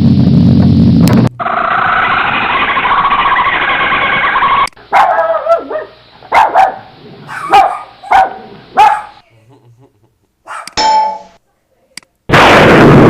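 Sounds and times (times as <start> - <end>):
steady noisy sound: 0.0 - 9.3
dog barking: 4.9 - 9.2, 10.4 - 10.8.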